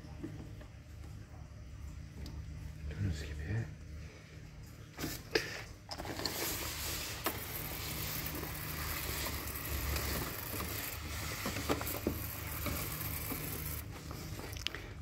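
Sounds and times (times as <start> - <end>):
spray can hissing: 6.7 - 13.9.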